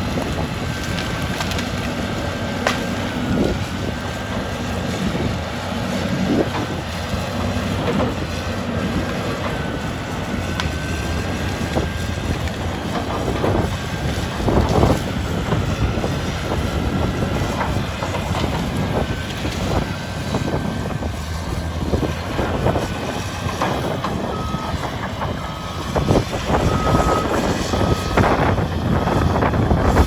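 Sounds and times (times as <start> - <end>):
excavator diesel engine running: 0.0 - 30.0
sharp cracks and knocks: 0.1 - 3.0, 10.5 - 11.0.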